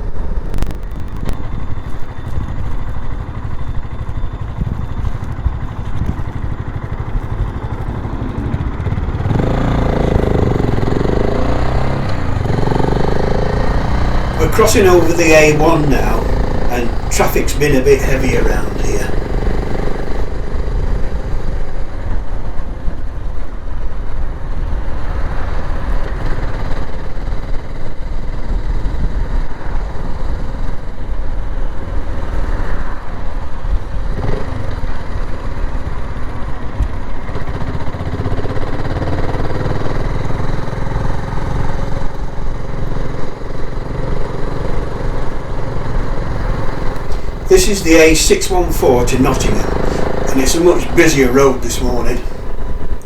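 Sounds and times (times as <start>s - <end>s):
motorcycle engine riding: 2.3s - 20.3s, 46.3s - 53.0s.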